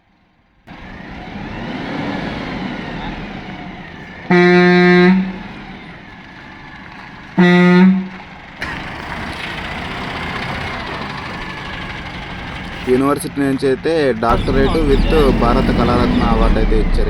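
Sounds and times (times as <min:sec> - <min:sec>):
truck horn honking: 0:04.0 - 0:06.0, 0:07.3 - 0:17.0.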